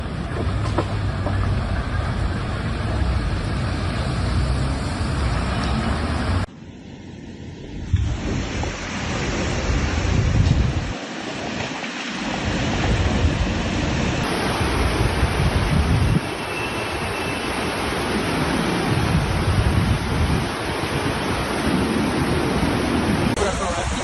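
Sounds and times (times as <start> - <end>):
wind rumbling on microphone: 7.4 - 24.0
heavy rain pouring: 8.1 - 24.0.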